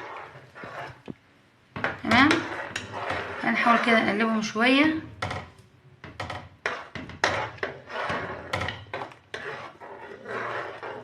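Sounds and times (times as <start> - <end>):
spoon knocking and scraping pot: 0.0 - 11.0.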